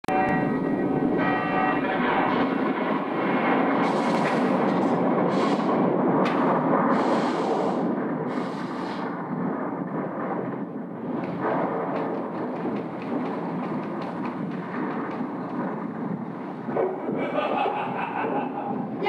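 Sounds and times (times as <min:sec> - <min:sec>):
bell ringing: 0:00.1 - 0:01.9
rumbling booms: 0:00.1 - 0:19.0
bursts of hiss: 0:06.9 - 0:09.1.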